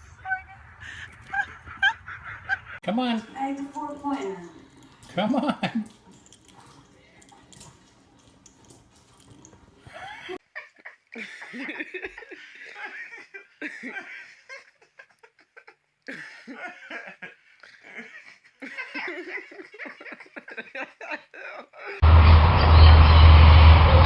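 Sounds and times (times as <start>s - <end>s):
person laughing: 0.8s - 2.8s, 5.2s - 5.9s, 9.9s - 22.0s.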